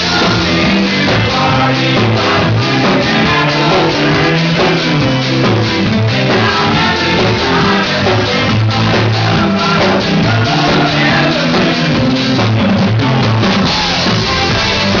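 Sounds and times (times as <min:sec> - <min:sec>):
drum kit: 0:00.0 - 0:15.0
person singing: 0:00.0 - 0:15.0
rock band playing: 0:00.0 - 0:15.0.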